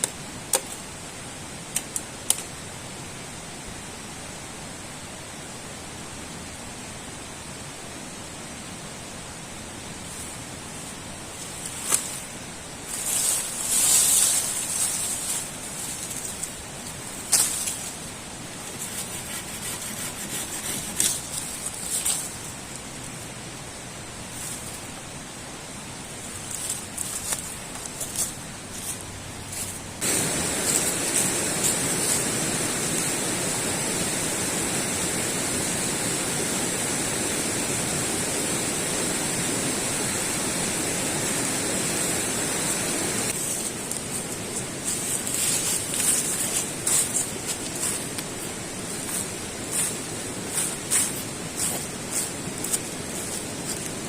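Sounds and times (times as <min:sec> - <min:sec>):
crunches and rustles: 0:11.3 - 0:23.2, 0:26.2 - 0:32.2, 0:43.3 - 0:54.0.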